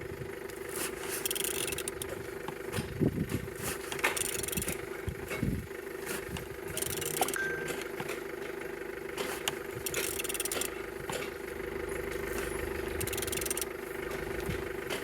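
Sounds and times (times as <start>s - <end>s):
ratchet wrench clicking: 1.1s - 2.2s, 3.9s - 4.8s, 6.4s - 7.4s, 9.4s - 10.8s, 12.9s - 13.7s.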